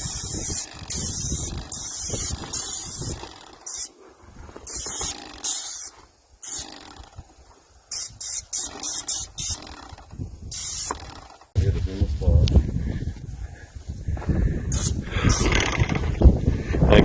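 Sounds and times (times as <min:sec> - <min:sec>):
paint sprayer hissing bursts: 0:00.0 - 0:04.0, 0:04.6 - 0:06.8, 0:07.9 - 0:11.5, 0:14.7 - 0:15.7.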